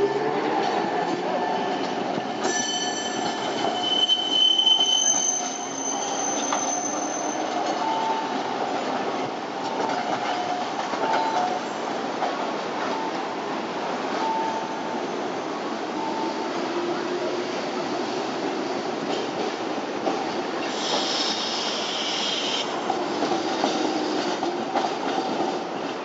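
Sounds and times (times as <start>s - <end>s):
tram running noise: 0.0s - 26.0s
steel wheels squealing on rails: 0.1s - 8.4s, 20.6s - 25.8s.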